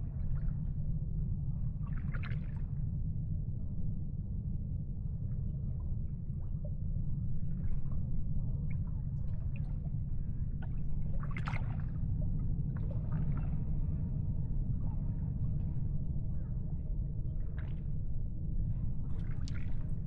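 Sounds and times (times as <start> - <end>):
water gurgling and lapping: 10.4 - 14.0, 19.1 - 20.0.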